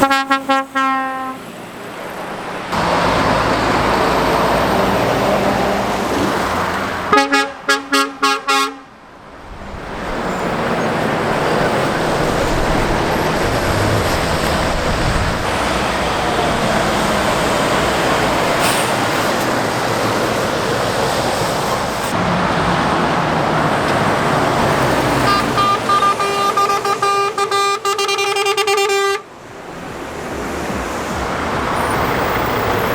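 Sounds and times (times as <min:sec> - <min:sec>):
vehicle horn tooting: 0:00.0 - 0:01.5, 0:07.1 - 0:08.9, 0:25.2 - 0:29.3
road traffic passing: 0:00.0 - 0:32.9.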